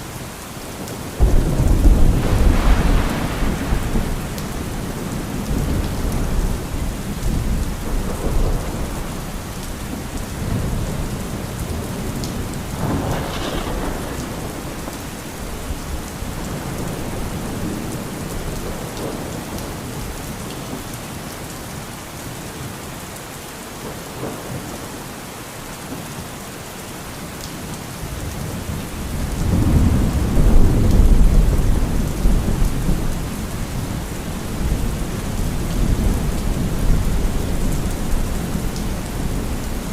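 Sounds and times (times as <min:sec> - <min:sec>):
steady rain: 0:00.0 - 0:39.9
thunder rumbling: 0:01.2 - 0:20.2, 0:28.2 - 0:39.9.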